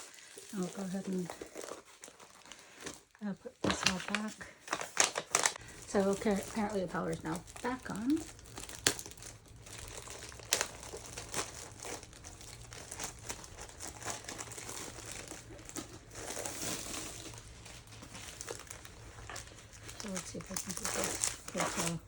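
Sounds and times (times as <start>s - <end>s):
plastic wrapping crinkling: 0.0s - 22.0s.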